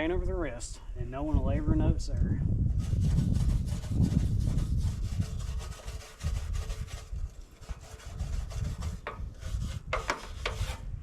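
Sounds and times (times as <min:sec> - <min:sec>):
wire brush scrubbing metal: 0:02.7 - 0:11.0.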